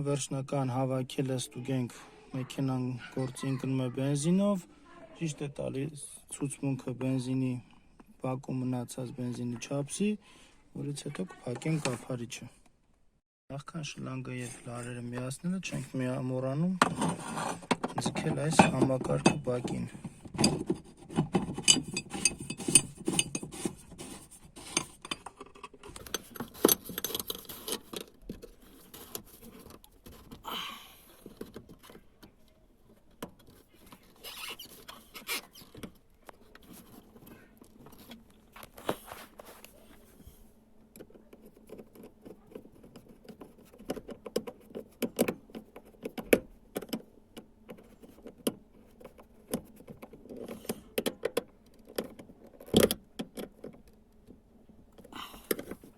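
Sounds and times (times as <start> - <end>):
metallic clicks and knocks of tools: 21.4 - 23.5.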